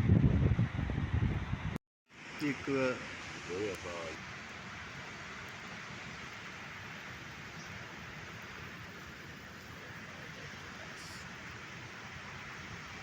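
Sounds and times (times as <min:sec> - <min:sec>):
flowing water rushing: 0:02.1 - 0:13.0.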